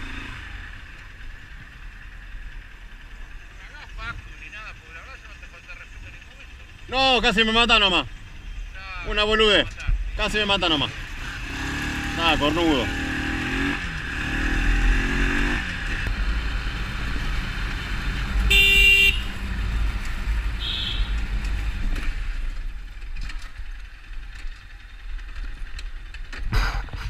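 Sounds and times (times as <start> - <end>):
motorcycle engine revving: 0.0 - 27.0
wind and road rumble: 0.0 - 27.0
vehicle horn: 18.4 - 19.4, 20.6 - 21.2.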